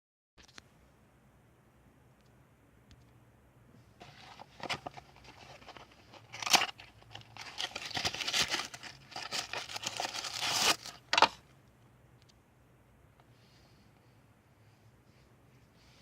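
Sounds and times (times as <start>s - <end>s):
packaging crinkling and tearing: 4.0s - 11.4s
sharp rip of wrapping: 7.4s - 11.0s.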